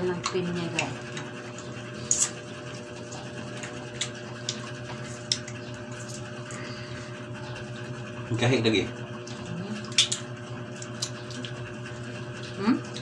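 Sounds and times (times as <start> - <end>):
low electrical hum: 0.0 - 13.0
wet chewing clicks and smacks: 10.8 - 11.7.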